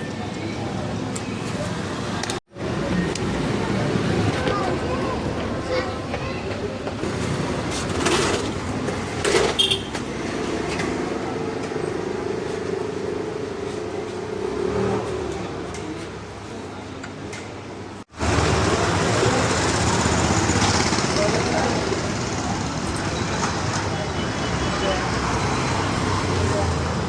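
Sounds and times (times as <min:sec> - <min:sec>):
vehicle engine running: 0:18.2 - 0:24.2.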